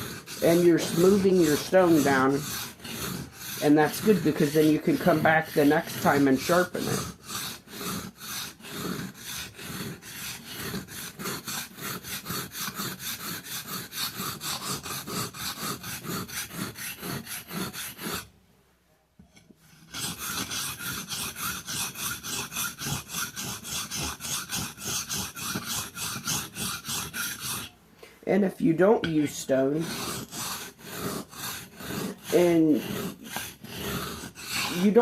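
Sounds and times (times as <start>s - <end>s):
knife scraping on whetstone: 0.0s - 18.3s, 19.2s - 27.7s, 29.0s - 35.0s.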